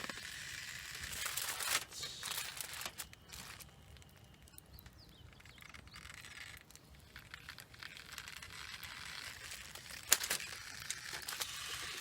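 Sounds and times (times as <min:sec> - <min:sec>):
campfire crackling: 0:00.0 - 0:12.0
bird chirps: 0:04.4 - 0:07.3.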